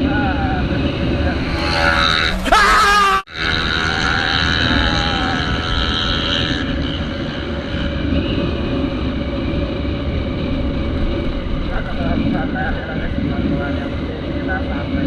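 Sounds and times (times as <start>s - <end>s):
road noise: 0.0s - 14.7s
wind rushing on microphone: 0.0s - 15.0s
scooter engine running: 0.5s - 7.9s.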